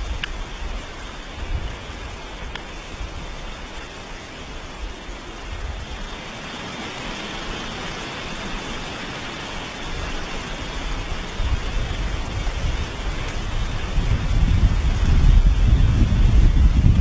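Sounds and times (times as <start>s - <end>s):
steady hiss: 0.0s - 17.0s
low rumble: 11.4s - 17.0s.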